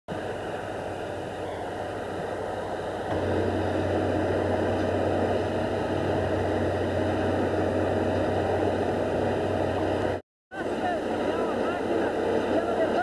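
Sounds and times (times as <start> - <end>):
heavy diesel engine running: 3.1 - 10.2.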